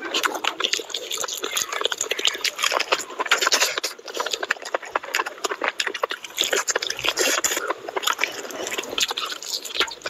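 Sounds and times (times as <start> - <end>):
wet chewing and lip-smacking: 0.0 - 10.0.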